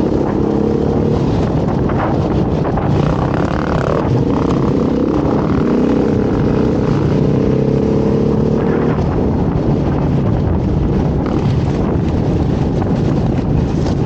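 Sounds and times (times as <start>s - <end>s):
dirt bike engine revving: 2.7s - 9.3s, 11.2s - 11.9s.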